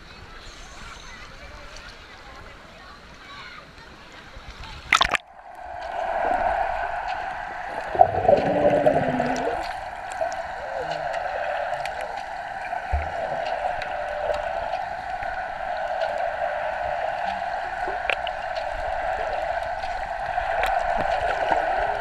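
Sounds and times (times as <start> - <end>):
water rushing and gurgling: 4.9 - 22.0.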